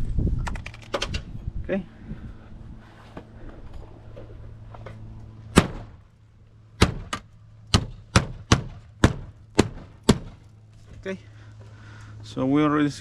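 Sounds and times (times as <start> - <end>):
low steady hum: 0.0 - 13.0
hammer striking nails: 6.8 - 10.4.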